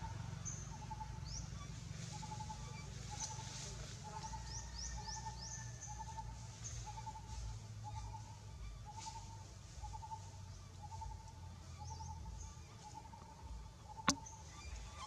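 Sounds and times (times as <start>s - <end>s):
sharp click: 14.0s - 14.3s.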